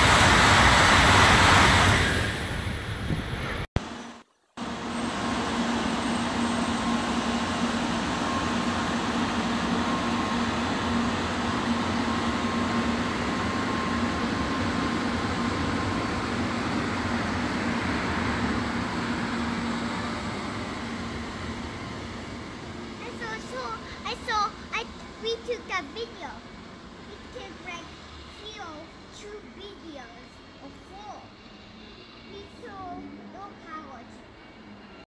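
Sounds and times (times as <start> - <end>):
train rumbling past: 0.0 - 35.0.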